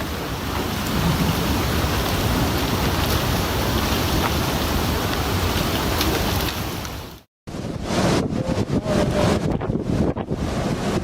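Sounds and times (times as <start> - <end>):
river rushing with ice: 0.0 - 7.3.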